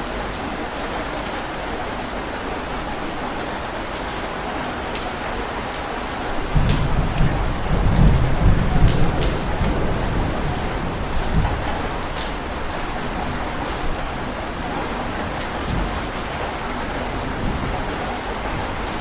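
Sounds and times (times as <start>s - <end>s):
heavy rain falling: 0.0s - 19.0s
rumble of thunder: 6.4s - 14.2s.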